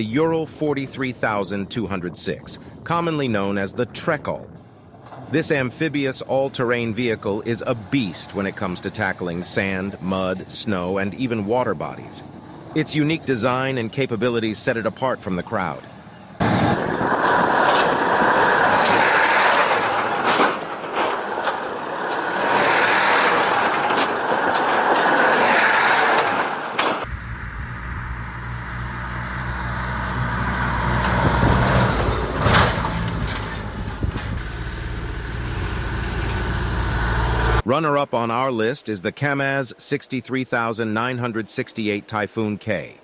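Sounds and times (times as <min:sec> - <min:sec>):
diesel engine droning: 0:04.5 - 0:37.7
loud noisy rush: 0:06.9 - 0:37.7.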